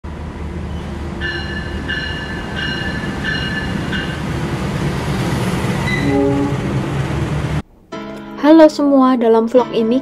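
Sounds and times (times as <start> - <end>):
locomotive engine rumble: 0.1 - 7.6.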